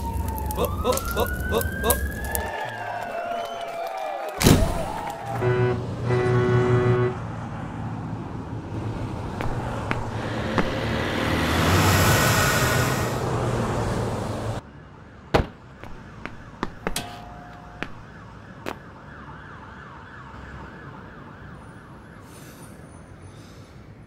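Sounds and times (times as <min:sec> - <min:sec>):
faint distant wavering siren: 0:00.0 - 0:03.8, 0:14.6 - 0:23.1
car rushing past: 0:07.7 - 0:14.6.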